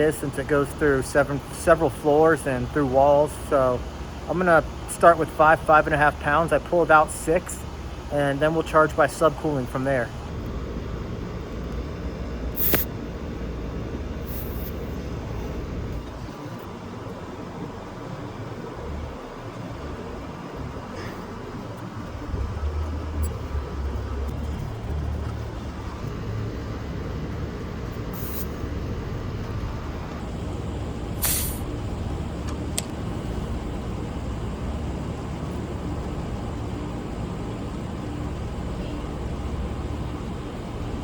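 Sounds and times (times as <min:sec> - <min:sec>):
low machine hum: 0:00.0 - 0:41.0
gas hissing: 0:12.5 - 0:13.0, 0:14.2 - 0:15.0, 0:28.1 - 0:28.6, 0:31.2 - 0:31.7
small click: 0:12.6 - 0:12.9.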